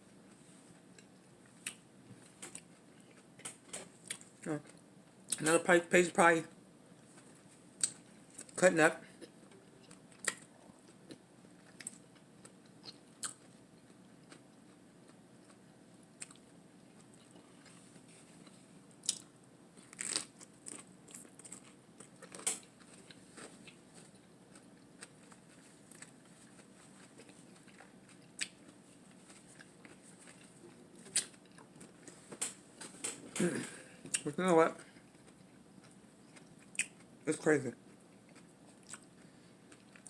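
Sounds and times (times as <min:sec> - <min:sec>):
mouth chewing: 0:09.2 - 0:15.6, 0:35.0 - 0:37.1, 0:37.9 - 0:40.0
lettuce crunching: 0:16.2 - 0:32.2.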